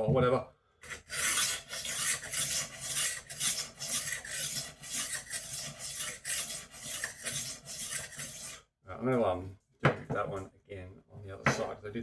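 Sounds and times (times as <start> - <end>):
knife sharpener rasping on blade: 0.8 - 8.6.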